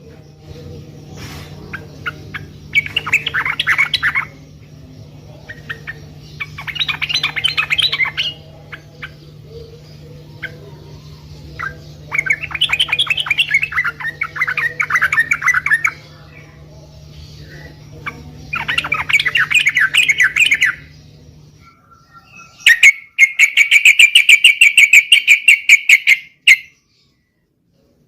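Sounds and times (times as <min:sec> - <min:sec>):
steady low hum: 0:00.0 - 0:25.1
bird chattering song: 0:00.0 - 0:28.0.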